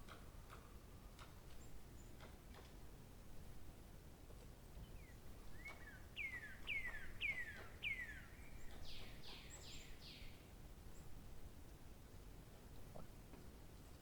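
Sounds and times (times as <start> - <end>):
songbird singing: 4.8 - 10.4.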